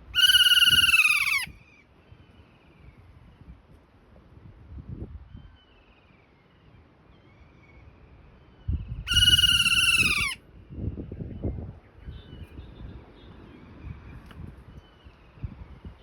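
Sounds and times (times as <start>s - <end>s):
fainter bird calls: 0.0s - 1.6s, 9.1s - 10.4s
parrot shrill call: 0.1s - 1.6s, 9.1s - 10.4s.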